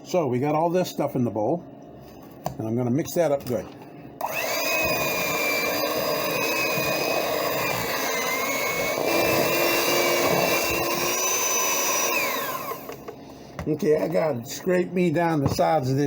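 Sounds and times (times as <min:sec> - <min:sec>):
electric mixer beating dough: 0:04.2 - 0:13.1.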